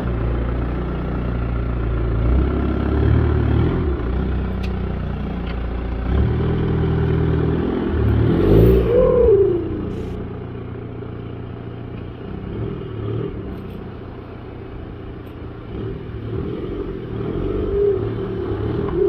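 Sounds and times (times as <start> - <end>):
diesel engine running: 0.0 - 19.0
turbocharger whistling: 8.0 - 10.3, 16.4 - 19.0.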